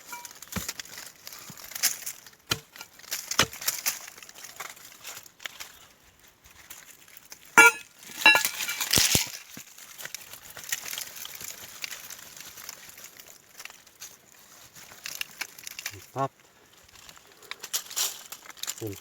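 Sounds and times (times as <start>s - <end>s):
sharp scrapes and knocks: 0.0s - 4.0s, 7.6s - 9.4s
dry leaves crackling and rustling: 0.0s - 19.0s.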